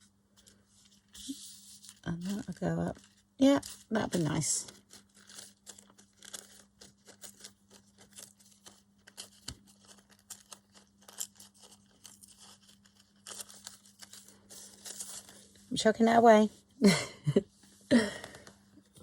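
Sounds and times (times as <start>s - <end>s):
paper tearing and crackling: 0.4s - 15.5s.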